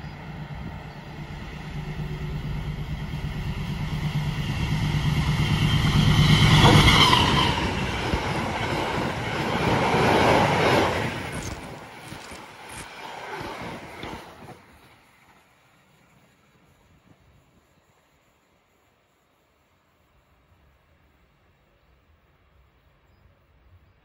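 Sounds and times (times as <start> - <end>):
coach wheels rumbling on rails: 0.0 - 17.5
diesel locomotive engine drone: 0.0 - 19.1.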